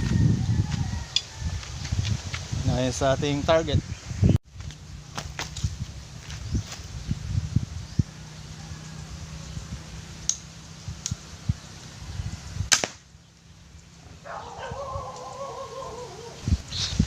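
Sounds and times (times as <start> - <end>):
slingshot snap: 10.2 - 11.2, 12.7 - 13.0.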